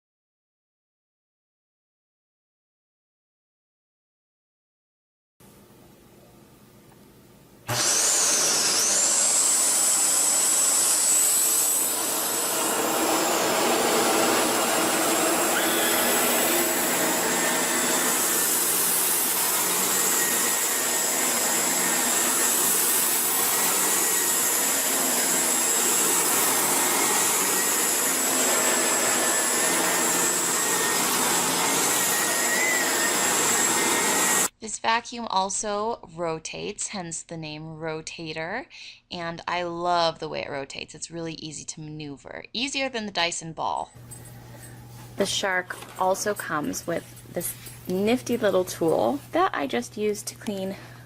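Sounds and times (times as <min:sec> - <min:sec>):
vacuum cleaner motor whining: 0:07.7 - 0:34.5.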